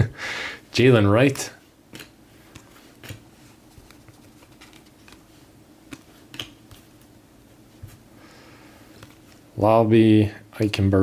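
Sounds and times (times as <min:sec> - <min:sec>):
faint steady hum: 0:00.0 - 0:11.0
trading cards sliding: 0:01.9 - 0:07.1.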